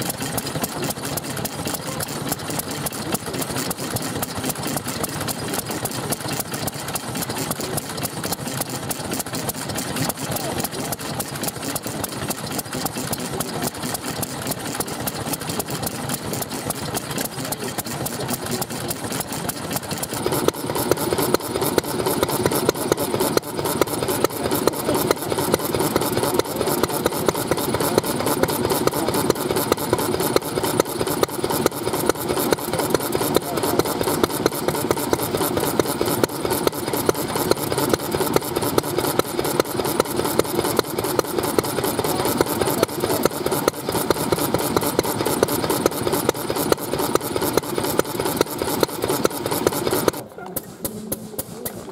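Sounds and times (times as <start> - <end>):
old stationary engines running: 0.0 - 51.9.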